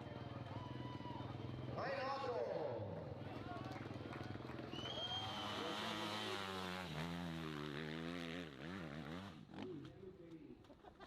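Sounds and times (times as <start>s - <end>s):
motorcycle engine revving: 5.6s - 9.7s.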